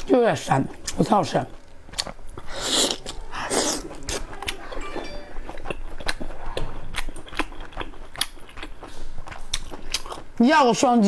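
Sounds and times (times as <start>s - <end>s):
chewing clicks and crunches: 5.6s - 10.3s.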